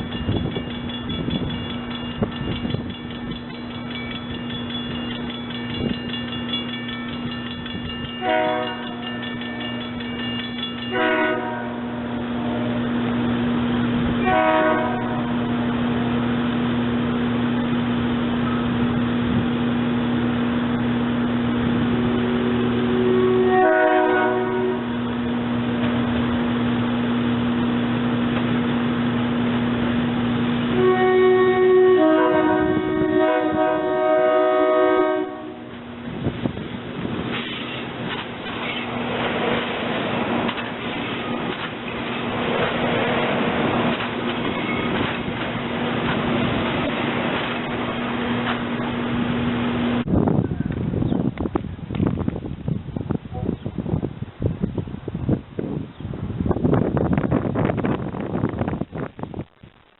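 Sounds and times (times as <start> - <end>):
rumble of train passing: 0.0 - 59.9
train horn blasts: 8.2 - 9.2, 10.8 - 13.0, 14.2 - 15.8, 22.7 - 25.1, 30.7 - 35.8.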